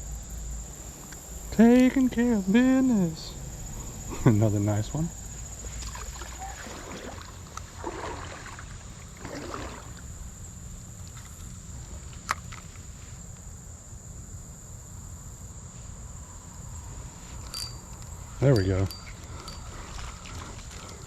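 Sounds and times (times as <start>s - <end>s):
high-pitched insect drone: 0.0s - 7.2s, 14.8s - 21.0s
creek water splashing: 5.6s - 10.3s, 17.6s - 21.0s.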